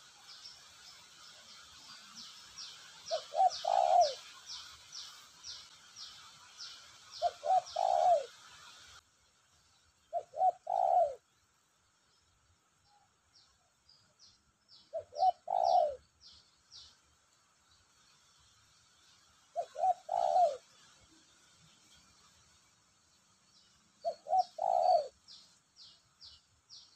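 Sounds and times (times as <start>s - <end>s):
dove cooing: 3.1s - 4.4s, 7.2s - 8.4s, 10.1s - 11.2s, 14.9s - 16.0s, 19.6s - 20.7s, 24.0s - 25.2s.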